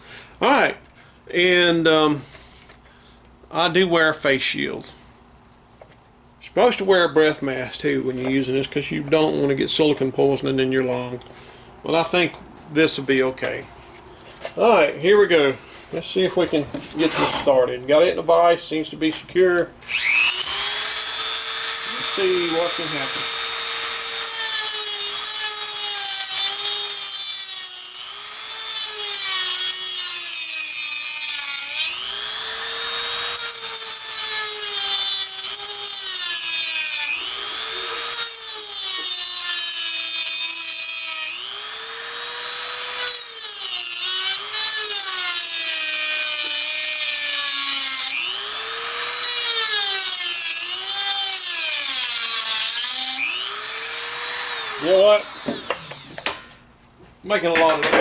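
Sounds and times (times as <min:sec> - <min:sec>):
rotary tool motor whine: 0:19.9 - 0:24.1, 0:31.4 - 0:33.4.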